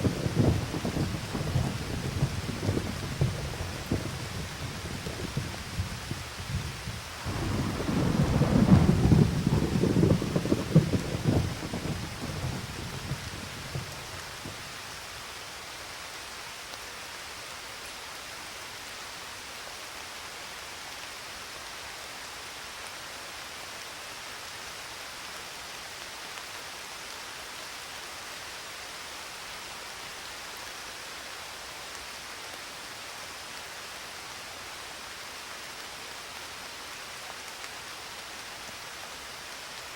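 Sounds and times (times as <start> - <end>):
rolling thunder: 0.0 - 14.6
steady rain hiss: 0.0 - 39.9.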